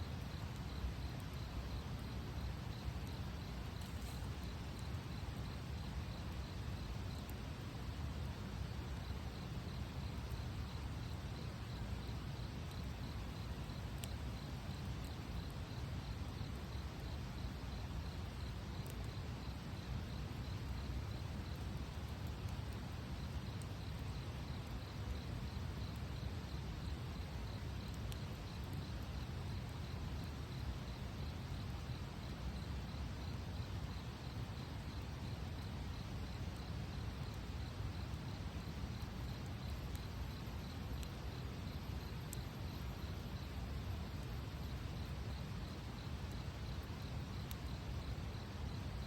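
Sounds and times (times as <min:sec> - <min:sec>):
insect chirping: 0:00.0 - 0:49.0
wood fire burning: 0:00.1 - 0:49.0
fire popping: 0:00.2 - 0:07.5.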